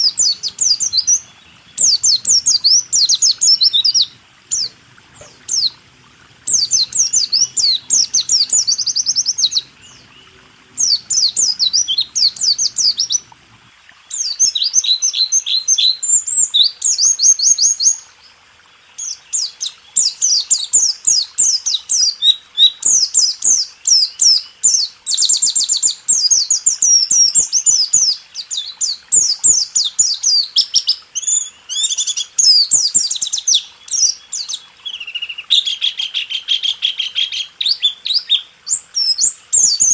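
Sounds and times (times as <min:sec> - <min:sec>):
bird singing high chattering notes: 0:00.0 - 0:05.8, 0:06.5 - 0:13.4.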